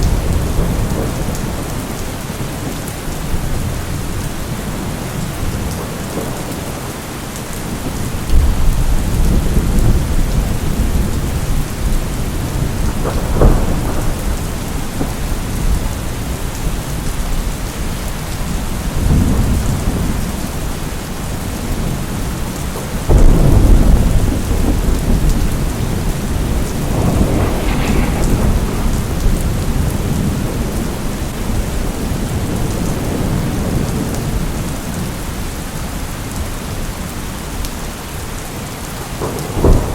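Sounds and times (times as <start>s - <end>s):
heavy rain: 0.0s - 39.9s
thunder rolling: 8.3s - 16.4s, 23.0s - 34.5s, 39.2s - 39.9s.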